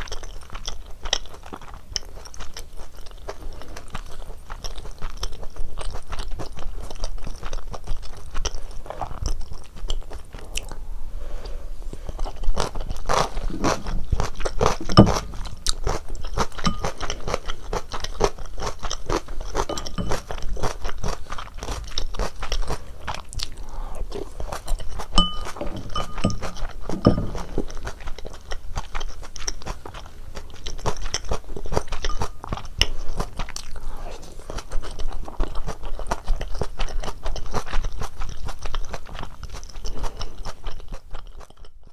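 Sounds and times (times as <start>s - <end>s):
wet chewing and biting: 12.1s - 41.9s.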